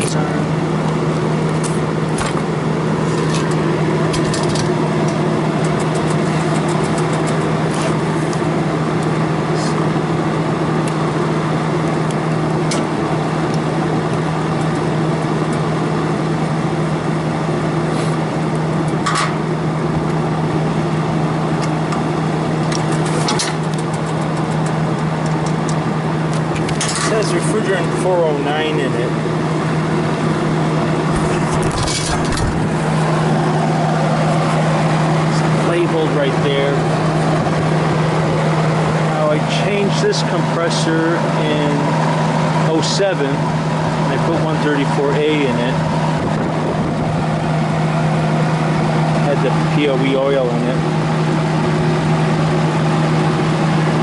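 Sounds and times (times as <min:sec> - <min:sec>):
machine hum: 0:00.0 - 0:54.0.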